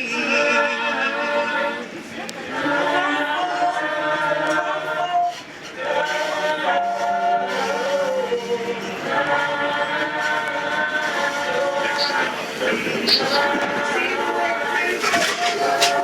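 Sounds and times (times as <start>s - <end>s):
group singing a cappella: 0.0s - 16.0s.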